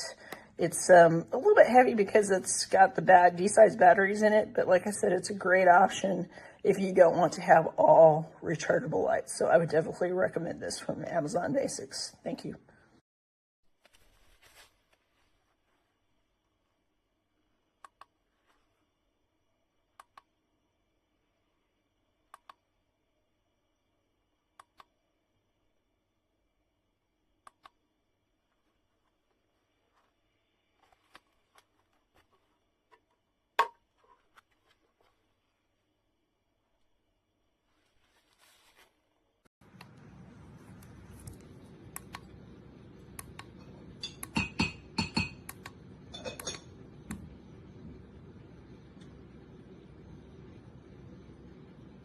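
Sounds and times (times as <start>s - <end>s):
steady low hum: 39.6s - 52.0s.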